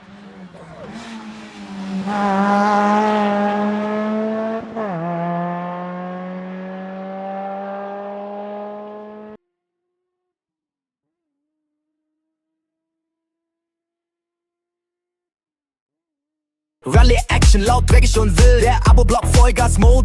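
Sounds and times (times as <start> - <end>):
rally car engine accelerating past: 0.0 - 9.4.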